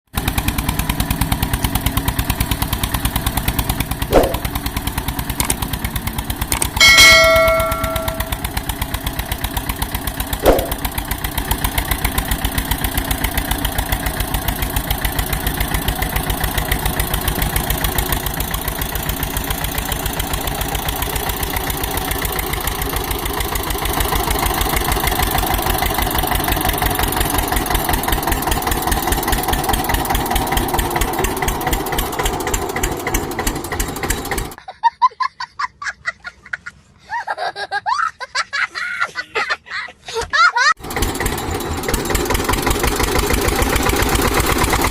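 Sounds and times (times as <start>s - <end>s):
tractor diesel engine knocking: 0.1s - 34.6s, 40.8s - 44.9s
sharp click: 4.1s - 4.4s, 10.4s - 10.8s.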